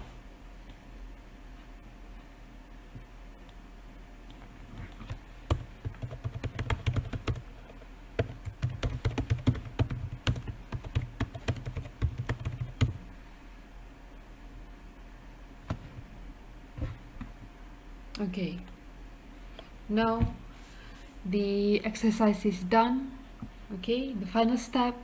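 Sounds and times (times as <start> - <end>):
keyboard typing clicks: 4.3 - 7.4, 8.2 - 13.0.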